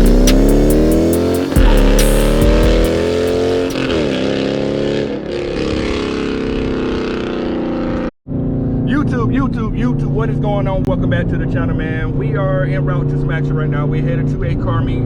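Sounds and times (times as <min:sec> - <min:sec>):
car engine revving: 0:00.0 - 0:14.8.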